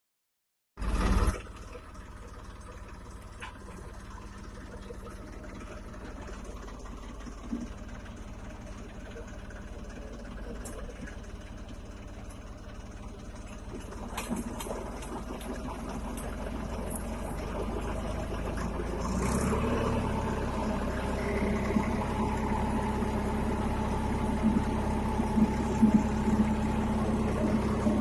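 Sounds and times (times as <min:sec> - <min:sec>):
tractor engine running: 0:00.8 - 0:28.0.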